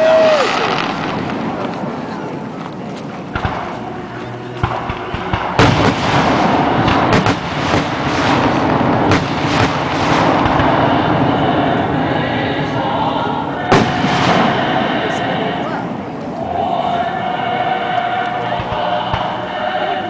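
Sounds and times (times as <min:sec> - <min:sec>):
smaller firework bangs: 0:00.0 - 0:12.6, 0:13.6 - 0:15.2
fireworks booming: 0:00.0 - 0:17.3, 0:18.6 - 0:19.5.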